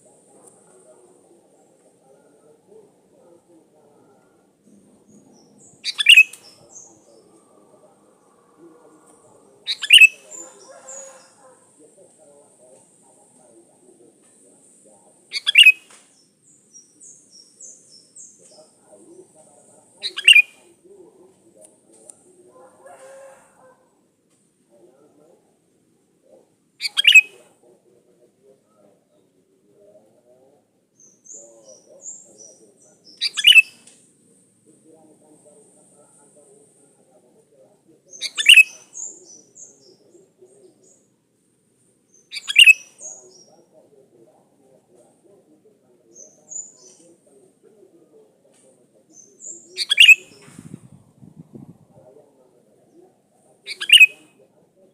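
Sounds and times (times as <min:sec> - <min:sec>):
bird chirping calls: 0:03.9 - 0:11.7, 0:15.2 - 0:20.7, 0:26.8 - 0:27.4, 0:30.9 - 0:33.9, 0:38.1 - 0:41.1, 0:42.0 - 0:43.8, 0:46.0 - 0:47.4, 0:49.0 - 0:51.7, 0:52.9 - 0:54.3.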